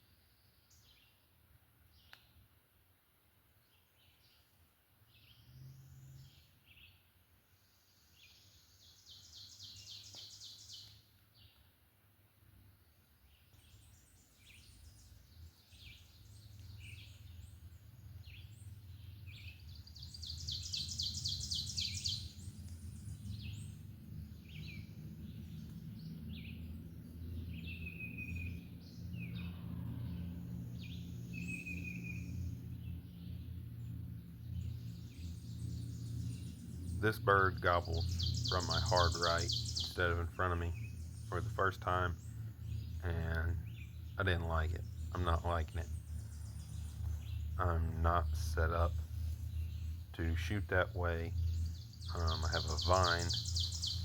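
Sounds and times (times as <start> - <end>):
songbirds singing: 0.0 - 54.0
low steady rumble: 13.6 - 54.0.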